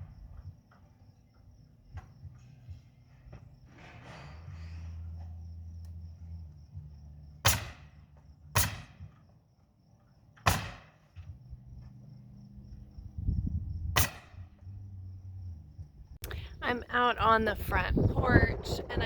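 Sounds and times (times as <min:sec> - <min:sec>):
steady low hum: 0:00.0 - 0:09.2, 0:10.6 - 0:19.0
nail gun firing: 0:07.4 - 0:09.2, 0:10.4 - 0:11.2, 0:14.0 - 0:14.4.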